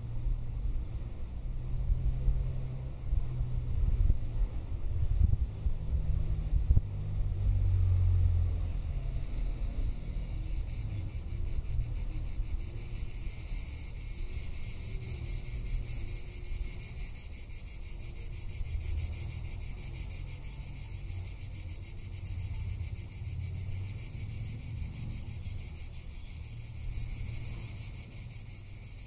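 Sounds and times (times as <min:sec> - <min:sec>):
cicadas buzzing: 0:00.0 - 0:29.0
wind rumbling on microphone: 0:00.3 - 0:12.6.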